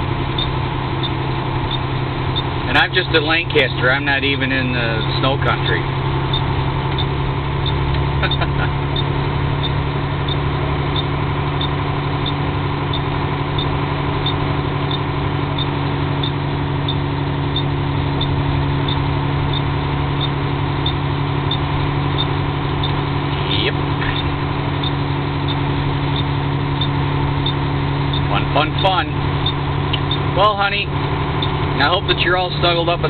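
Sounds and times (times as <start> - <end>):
truck engine drone: 0.0 - 33.0
light ticking: 0.3 - 2.5, 6.3 - 23.0, 24.0 - 30.2, 31.4 - 31.6.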